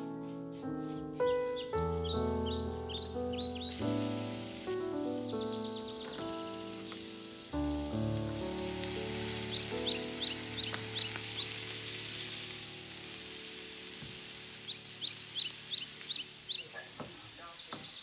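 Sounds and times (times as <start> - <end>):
soft background music: 0.0 - 16.6
onion sizzling in hot oil: 3.6 - 18.0.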